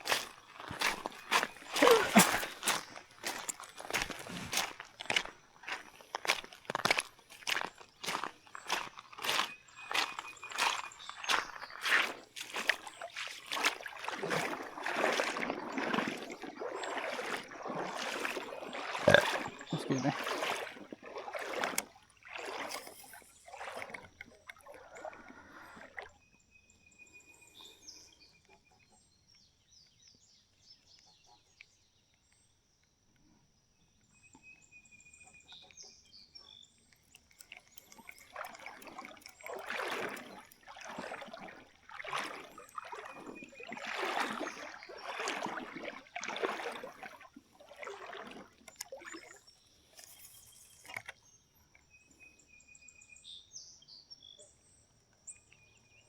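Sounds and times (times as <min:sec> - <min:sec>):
faint bird calls: 0:00.0 - 0:04.7
footsteps wading through water: 0:00.0 - 0:26.2, 0:35.3 - 0:51.3.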